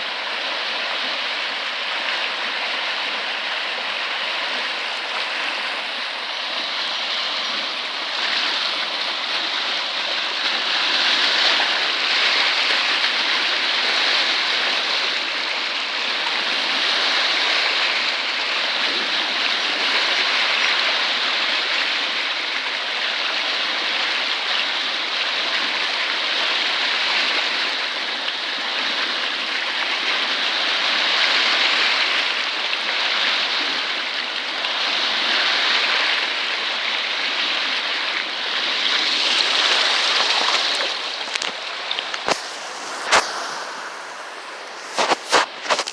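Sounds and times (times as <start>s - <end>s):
floodwater rushing: 0.4s - 13.4s, 37.6s - 45.9s.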